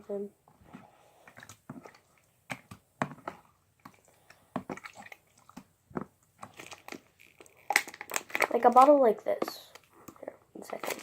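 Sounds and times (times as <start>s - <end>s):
slime squishing: 0.1s - 11.0s
plastic bottle crackling: 2.5s - 11.0s.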